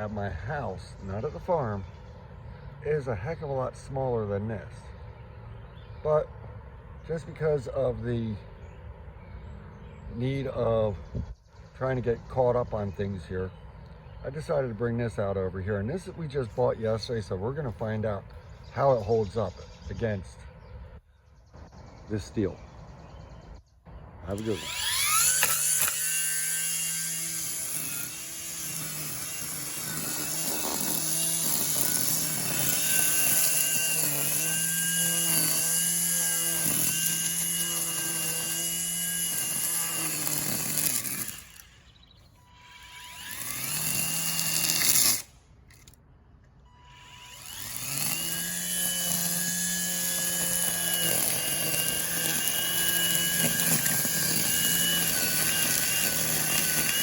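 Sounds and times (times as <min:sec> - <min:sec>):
string trimmer whining: 0:00.0 - 0:06.4, 0:22.6 - 0:57.0.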